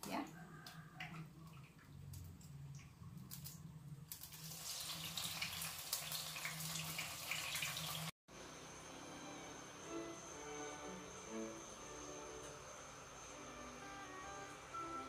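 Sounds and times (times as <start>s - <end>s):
food sizzling in frying pan: 4.1s - 8.2s.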